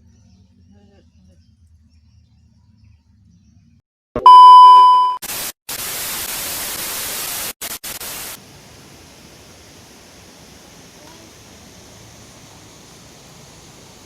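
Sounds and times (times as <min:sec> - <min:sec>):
electronic beep tone: 0:04.2 - 0:05.2
harsh white-noise static: 0:05.2 - 0:14.0.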